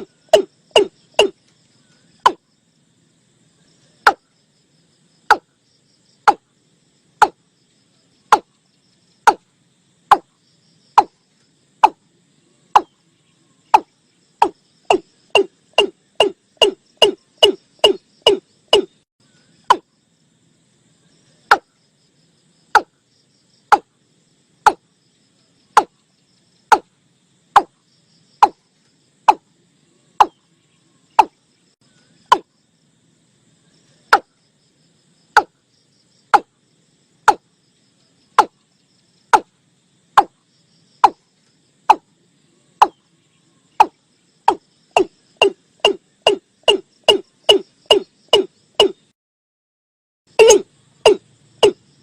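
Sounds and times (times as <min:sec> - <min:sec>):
watercock calling: 0:00.0 - 0:01.3, 0:13.8 - 0:18.9.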